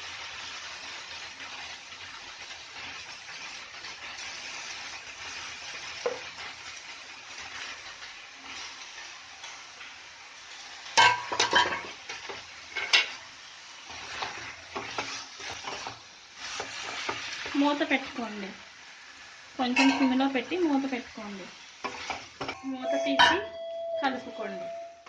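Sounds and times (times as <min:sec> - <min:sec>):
food sizzling in a frying pan: 0:00.0 - 0:25.0
metal clanking against pan: 0:11.0 - 0:13.2, 0:19.8 - 0:20.2.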